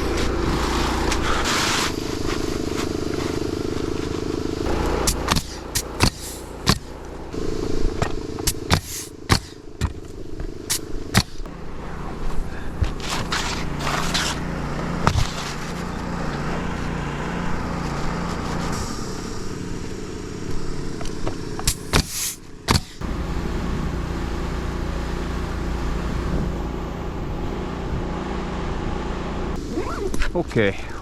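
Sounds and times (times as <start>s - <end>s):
low motor hum: 0.0s - 31.0s
sharp clicks or knocks: 4.7s - 7.2s, 21.6s - 23.0s.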